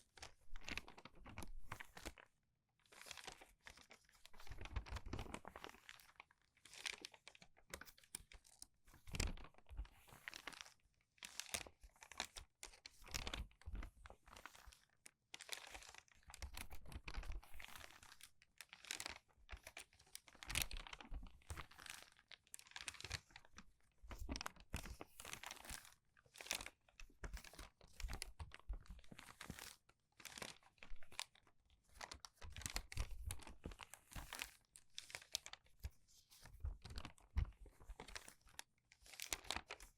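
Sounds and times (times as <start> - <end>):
crinkly paper pages turning: 0.0 - 2.3, 2.9 - 39.9.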